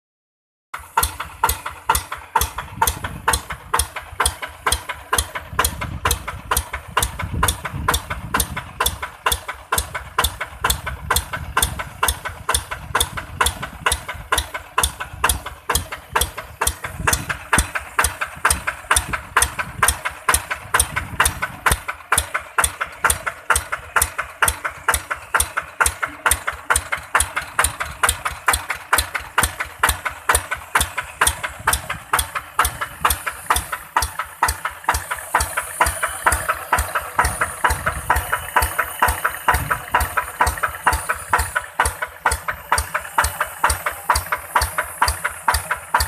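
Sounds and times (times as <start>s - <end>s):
tractor diesel engine idling: 0.8s - 46.0s.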